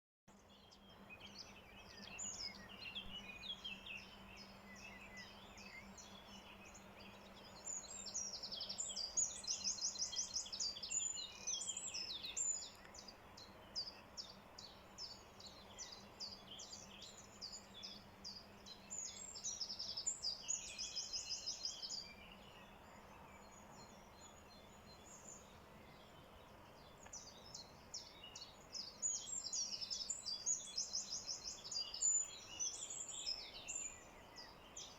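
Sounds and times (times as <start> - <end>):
songbirds chirping: 0.3 - 34.9.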